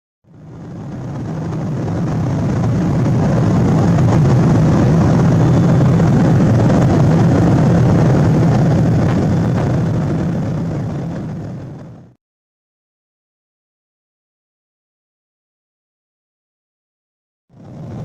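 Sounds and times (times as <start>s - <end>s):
airplane cabin engine roar: 0.2s - 12.2s, 17.5s - 18.0s
airflow noise: 0.3s - 12.2s.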